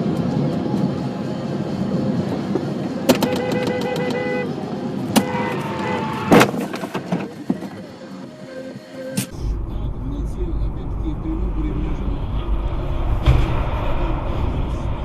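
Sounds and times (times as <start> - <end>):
road traffic noise: 0.0 - 15.0
car horn: 3.1 - 6.8
sharp bangs: 12.9 - 15.0.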